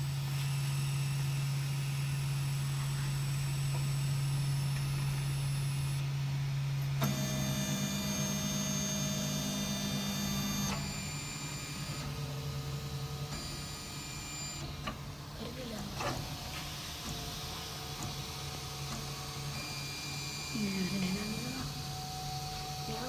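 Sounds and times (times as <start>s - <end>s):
stepper motors whining: 7.0s - 16.2s, 17.0s - 23.0s.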